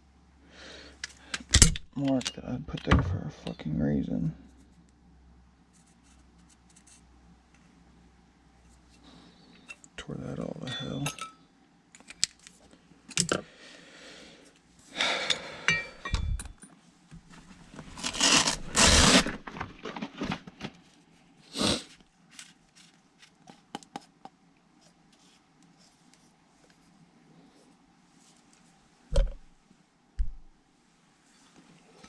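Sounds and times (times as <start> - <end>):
metal tools clicking and clinking: 1.0 - 2.9, 10.6 - 11.4, 15.2 - 16.8
scraping and rustling: 17.2 - 21.1.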